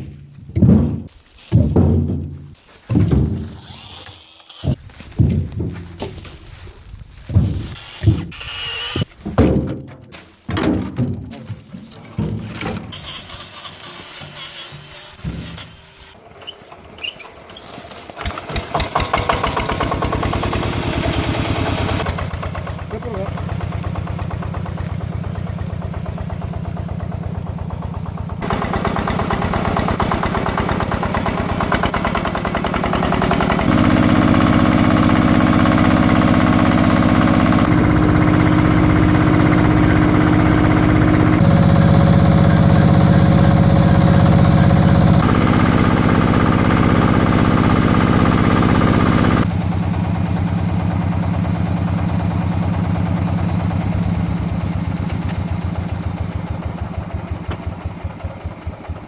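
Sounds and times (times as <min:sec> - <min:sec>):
diesel tiller engine running: 0:11.8 - 0:59.0.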